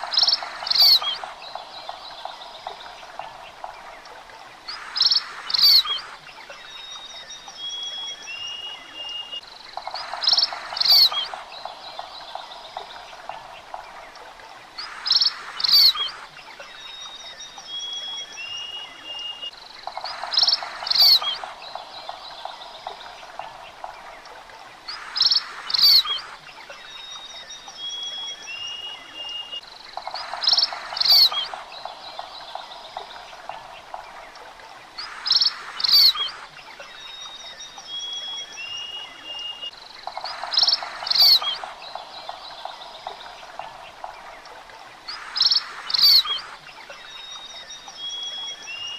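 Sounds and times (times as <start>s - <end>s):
birds chirping: 0.0s - 48.9s
thin whistled bird notes: 0.0s - 48.9s.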